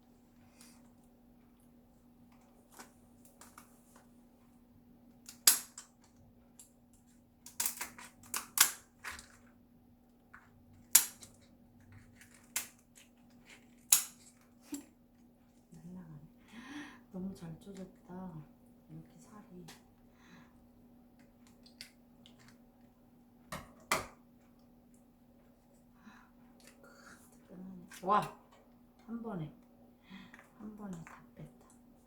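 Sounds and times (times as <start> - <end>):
lobster shell cracking: 7.4 - 9.3, 12.1 - 14.4.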